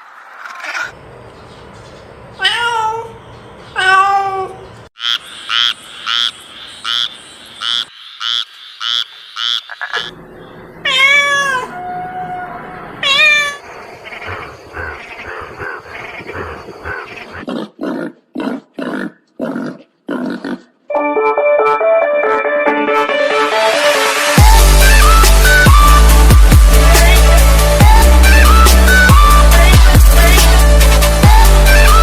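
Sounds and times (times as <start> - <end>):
animal pitched cries: 10.8 - 20.6.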